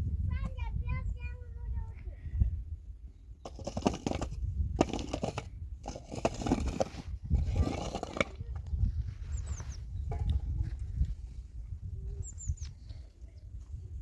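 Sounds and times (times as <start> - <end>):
digging tool scraping earth: 3.4 - 10.5.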